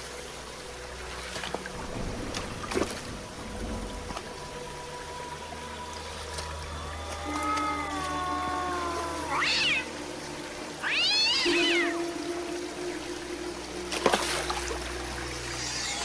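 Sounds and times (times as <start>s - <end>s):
water trickling: 0.0s - 16.0s
meow-like animal calls: 6.9s - 9.9s, 10.8s - 12.0s, 15.6s - 16.0s.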